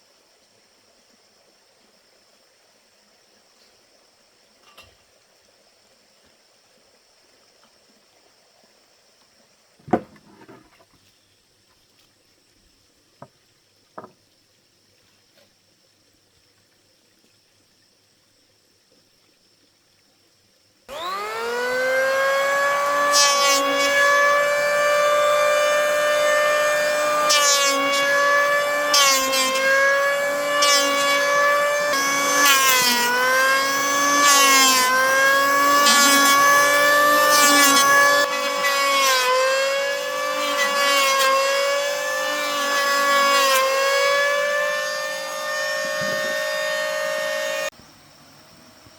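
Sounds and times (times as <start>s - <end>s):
power saw cutting wood: 20.9s - 47.7s.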